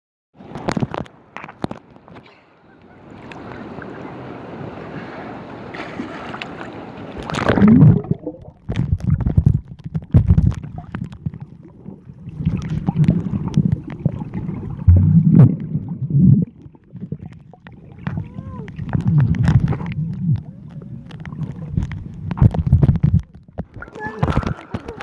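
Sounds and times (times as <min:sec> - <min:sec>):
wind and surf hiss: 0:00.4 - 0:07.5
sea water sloshing and gurgling: 0:00.4 - 0:25.0
low thumps and clicks: 0:07.2 - 0:11.6, 0:12.3 - 0:25.0.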